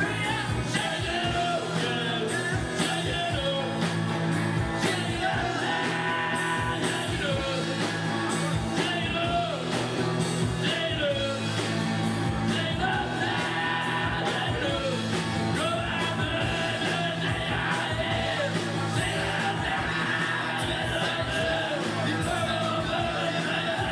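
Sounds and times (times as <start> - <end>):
person singing: 0.0 - 3.8, 4.8 - 8.0, 12.4 - 23.9
rock band playing: 0.0 - 23.9
steady drum beat: 0.0 - 23.9.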